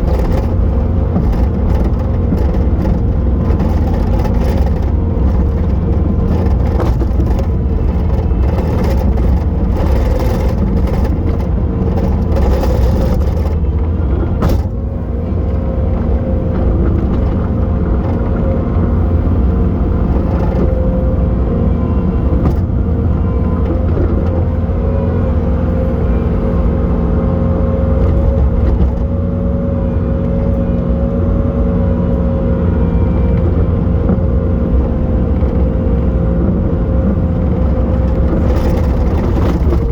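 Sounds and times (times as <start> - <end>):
loader diesel engine humming: 0.0 - 39.9.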